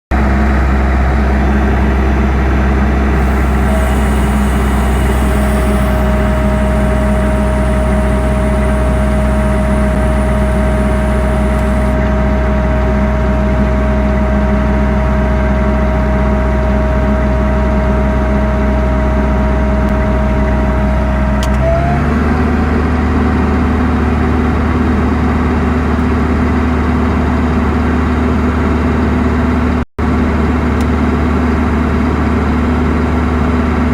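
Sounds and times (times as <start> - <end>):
heavy engine running: 1.0 - 12.1
thin steady whine: 3.0 - 12.0.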